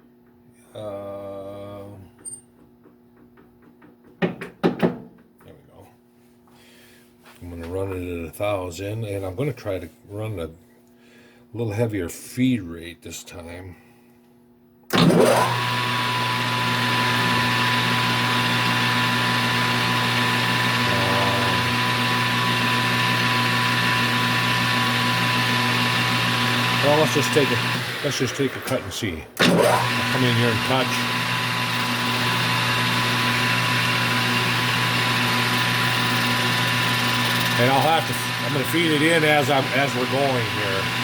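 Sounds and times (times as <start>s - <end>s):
lathe motor hum with high whine: 14.9s - 41.0s.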